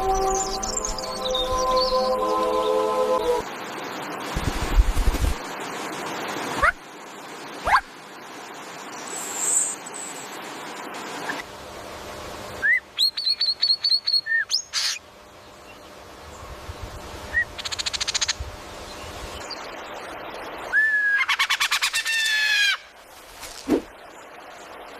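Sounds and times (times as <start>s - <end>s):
birds calling and singing: 0.0s - 2.8s, 12.7s - 16.6s.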